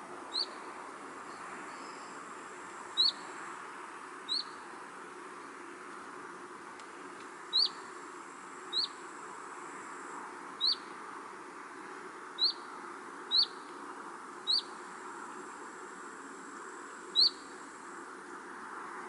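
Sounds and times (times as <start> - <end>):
background hiss: 0.0 - 19.0
bird chirping: 0.3 - 0.6, 3.0 - 3.2, 4.3 - 4.6, 7.5 - 7.8, 8.7 - 9.0, 10.6 - 10.9, 12.4 - 12.7, 13.3 - 13.7, 14.5 - 14.7, 17.2 - 17.4.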